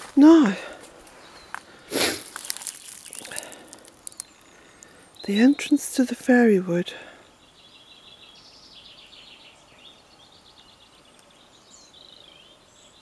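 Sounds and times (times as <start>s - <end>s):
faint songbird chirps and trills: 1.0s - 13.0s.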